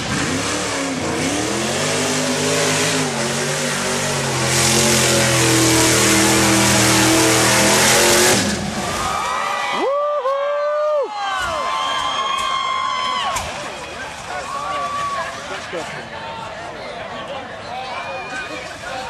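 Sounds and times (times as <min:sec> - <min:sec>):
truck engine revving hard: 0:00.0 - 0:09.2.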